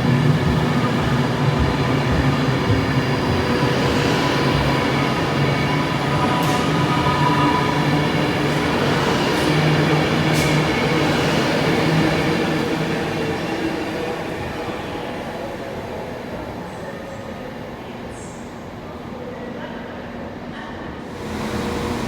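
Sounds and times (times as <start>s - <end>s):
train running past: 0.0s - 20.0s, 20.8s - 22.0s.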